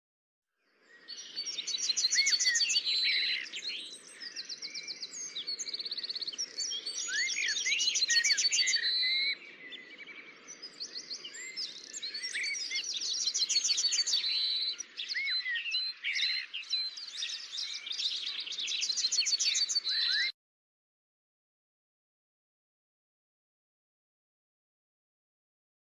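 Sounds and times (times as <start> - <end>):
songbirds singing: 0.6 - 20.4.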